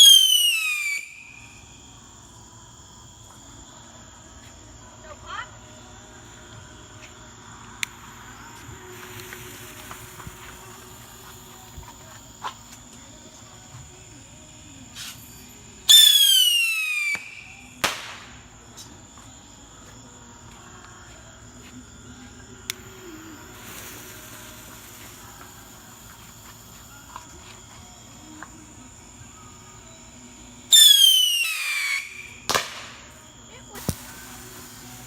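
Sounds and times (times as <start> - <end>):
bottle rocket screeching whistle: 0.0 - 1.4, 15.9 - 17.6, 30.7 - 32.5
small firework report: 0.0 - 35.0.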